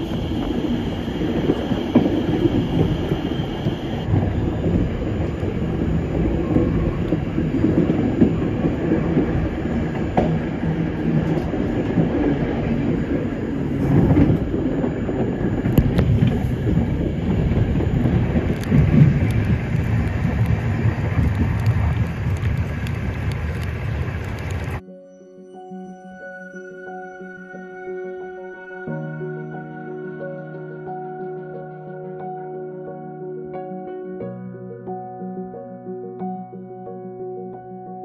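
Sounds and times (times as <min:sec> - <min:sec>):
train wheels rumbling on rails: 0:00.0 - 0:24.8
rail joint clicks: 0:04.9 - 0:24.8.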